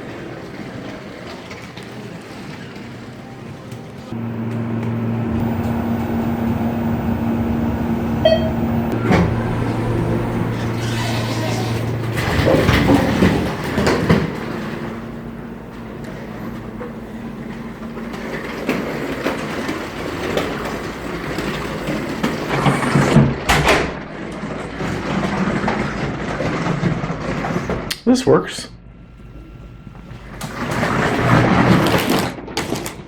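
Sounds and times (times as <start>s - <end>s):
vehicle engine and road noise: 4.1s - 19.2s
rattling: 4.2s - 23.1s.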